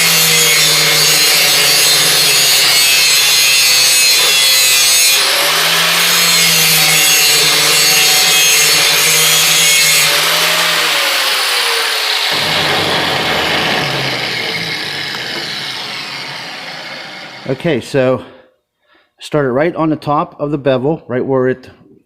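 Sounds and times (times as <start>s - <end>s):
power grinder grinding steel: 0.0s - 17.6s.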